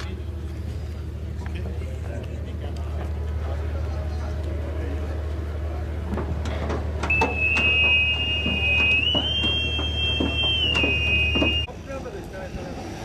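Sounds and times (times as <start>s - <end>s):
scattered knocks: 6.2s - 11.7s
high whistle-like tone: 7.1s - 11.7s.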